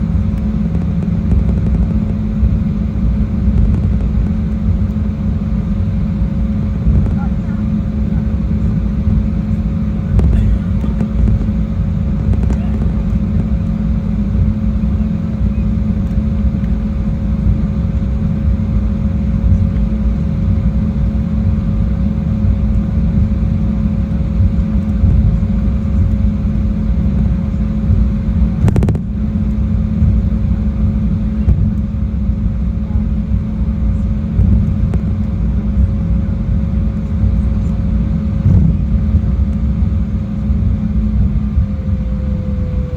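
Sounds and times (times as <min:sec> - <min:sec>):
jet cabin engine rumble: 0:00.0 - 0:42.9
thin steady hum: 0:00.0 - 0:42.9.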